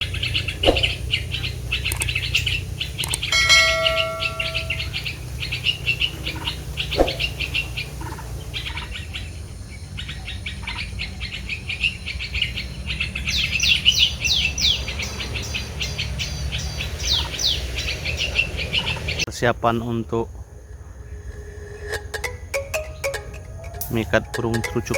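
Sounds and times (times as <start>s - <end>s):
songbirds chirping: 0.0s - 24.9s
short held tone: 3.3s - 5.0s
falling whistled notes: 3.3s - 5.1s, 21.5s - 24.9s.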